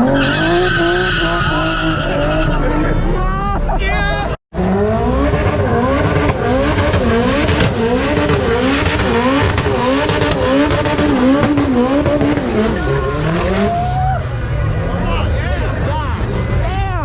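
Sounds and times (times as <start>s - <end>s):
car engine revving: 4.5s - 16.6s.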